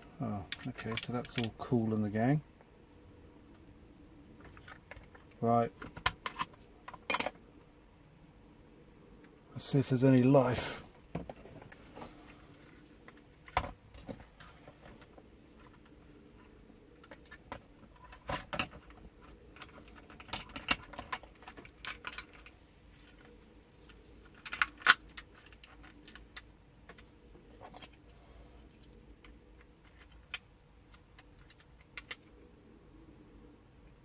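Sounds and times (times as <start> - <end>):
plastic toy parts clicking and rattling: 0.5 - 1.6, 17.0 - 28.0, 28.7 - 32.3.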